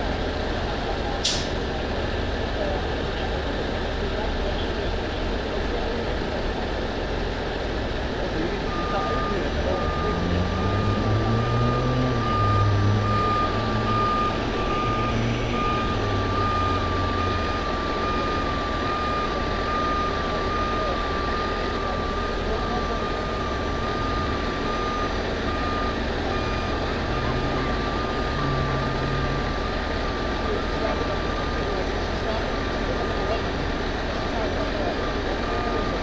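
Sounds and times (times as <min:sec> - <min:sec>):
truck engine running: 0:00.0 - 0:36.0
truck backup alarm beeping: 0:08.3 - 0:33.7, 0:34.4 - 0:36.0.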